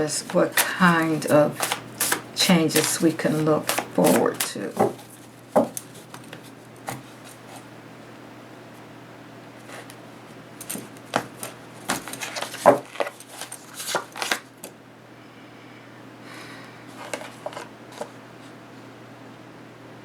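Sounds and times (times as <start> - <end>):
cards being shuffled: 0.2 - 7.6, 10.6 - 14.7, 16.9 - 18.2
steady low hum: 14.8 - 20.0.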